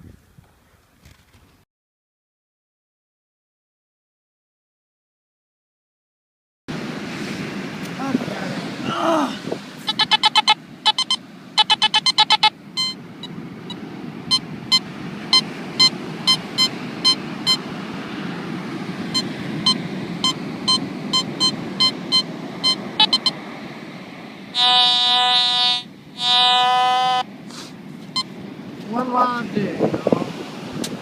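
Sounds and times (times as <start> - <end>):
metal detector beeping: 9.9 - 17.7, 19.1 - 23.4, 24.5 - 27.3, 28.1 - 28.3
low buzzy tone: 24.5 - 27.3.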